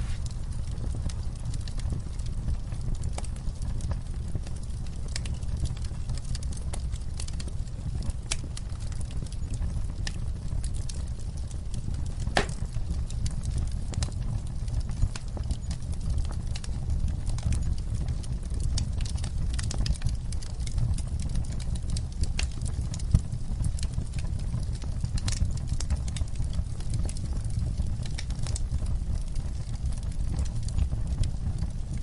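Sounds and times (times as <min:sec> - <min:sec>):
campfire crackling: 0:00.0 - 0:32.0
wood popping and snapping: 0:12.3 - 0:12.8.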